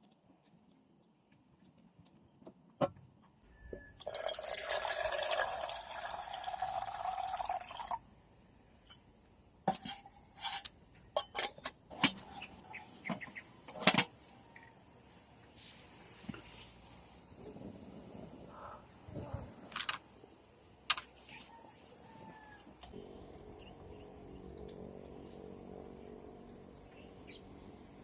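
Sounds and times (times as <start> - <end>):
liquid pouring into a container: 4.0 - 8.0.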